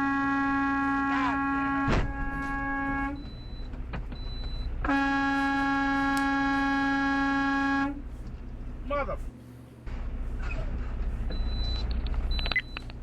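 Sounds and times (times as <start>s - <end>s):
truck horn blasts: 0.0s - 3.5s, 4.6s - 8.1s
low engine rumble: 0.0s - 13.0s.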